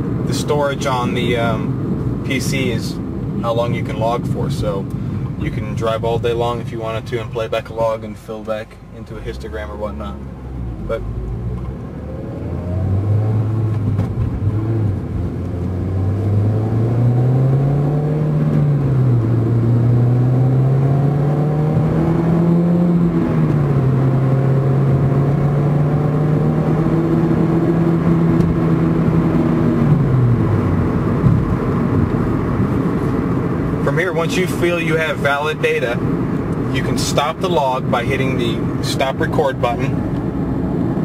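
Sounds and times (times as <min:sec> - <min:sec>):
turbocharged car engine accelerating: 0:09.2 - 0:41.0.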